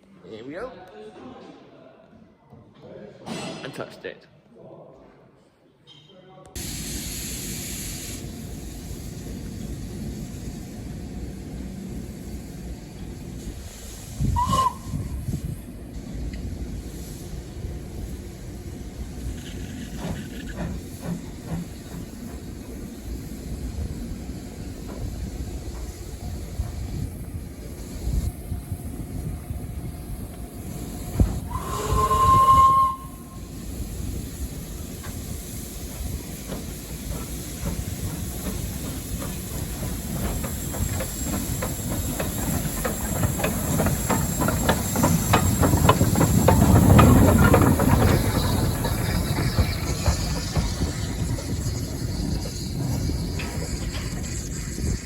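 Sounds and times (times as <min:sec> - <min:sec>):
locomotive exhaust beats and hiss: 0:06.6 - 0:55.0
steam locomotive whistle: 0:14.2 - 0:15.2, 0:31.5 - 0:33.5.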